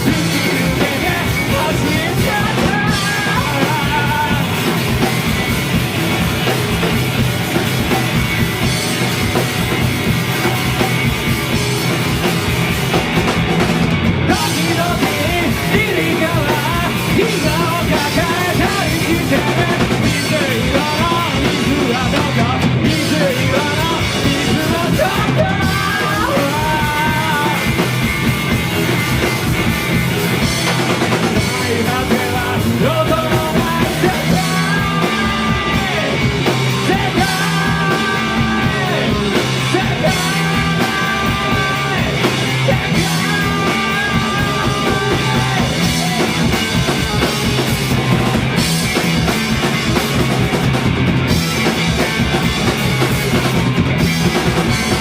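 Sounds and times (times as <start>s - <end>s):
person singing: 0.0s - 5.1s, 14.3s - 27.9s, 31.0s - 48.8s
drums: 0.0s - 55.0s
live punk rock band: 0.0s - 55.0s.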